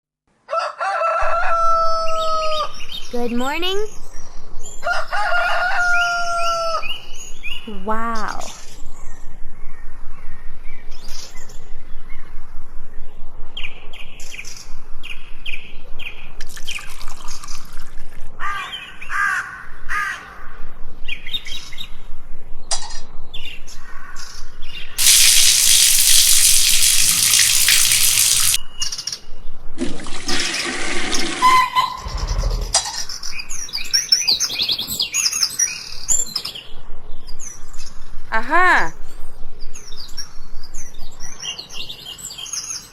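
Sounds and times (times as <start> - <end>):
low thud: 32.1 - 33.0.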